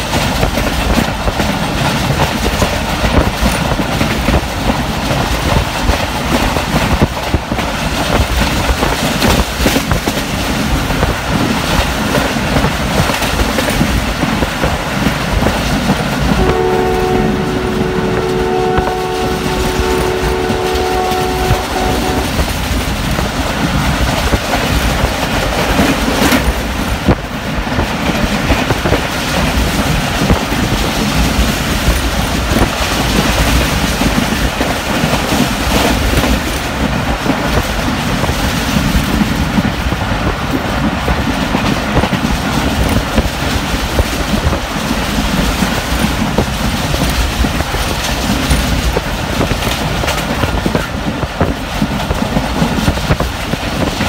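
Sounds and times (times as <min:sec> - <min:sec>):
train wheels rumbling on rail: 0:00.0 - 0:54.0
locomotive horn blast: 0:16.3 - 0:22.6.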